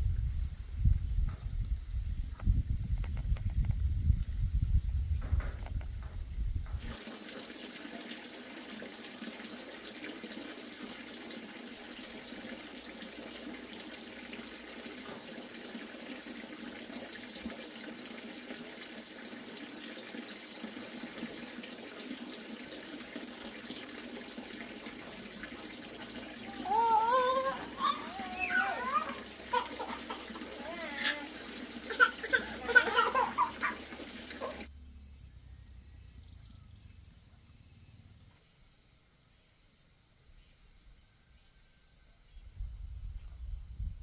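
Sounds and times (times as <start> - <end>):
running water into basin: 6.7 - 34.7.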